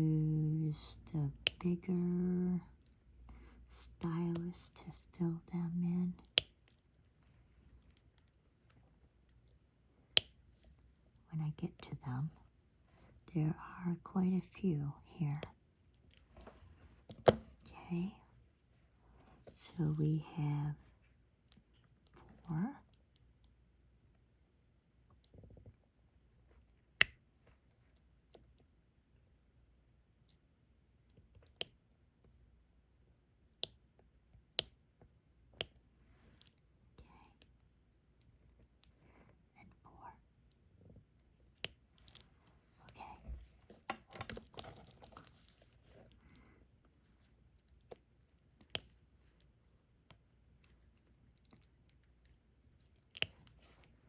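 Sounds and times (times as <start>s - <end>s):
stylus clicks and taps: 33.6s - 33.8s, 34.5s - 34.8s.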